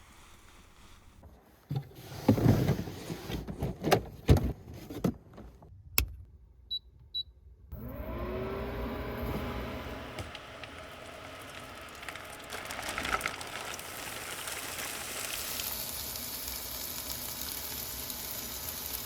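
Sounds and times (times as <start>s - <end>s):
knocks and rustling from handling: 1.2s - 5.7s.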